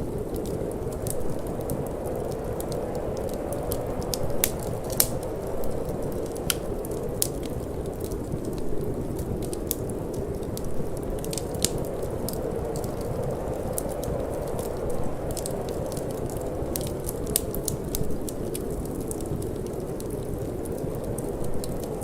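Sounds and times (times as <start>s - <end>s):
low rushing wind: 0.0s - 22.0s
wood fire crackling and popping: 0.0s - 22.0s.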